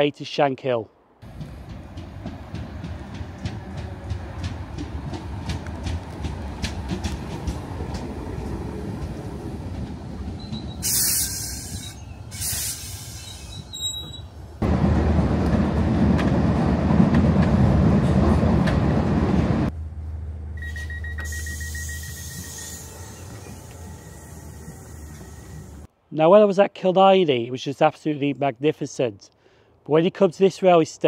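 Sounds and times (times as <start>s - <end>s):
train rumbling inside carriage: 1.2s - 25.9s
compressed air hissing: 10.8s - 13.7s, 21.2s - 25.9s
short high beeps: 20.6s - 22.8s
steady high tone: 20.6s - 25.6s.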